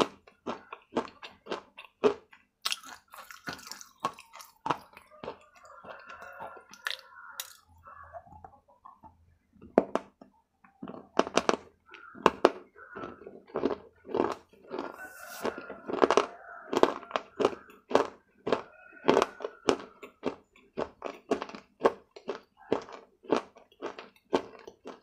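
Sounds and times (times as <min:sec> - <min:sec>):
muffled chewing: 0:00.0 - 0:25.0.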